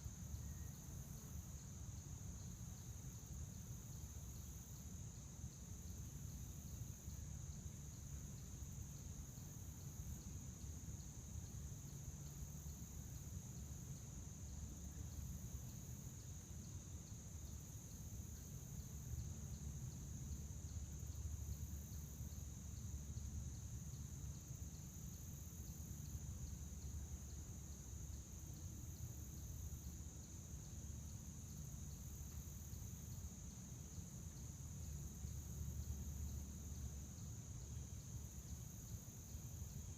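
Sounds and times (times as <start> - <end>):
crickets chirring: 0.0 - 39.9
higher insect sound: 0.0 - 39.9.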